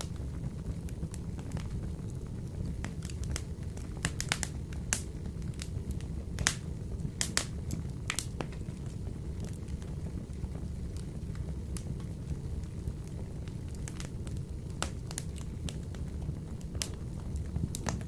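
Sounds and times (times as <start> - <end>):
low rumble of stove: 0.0 - 18.0
wood fire crackling: 0.0 - 18.0.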